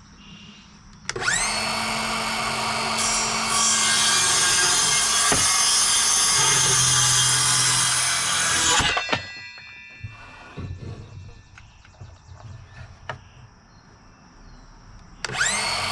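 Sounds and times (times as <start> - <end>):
power saw cutting wood: 1.1 - 9.1, 15.2 - 15.9.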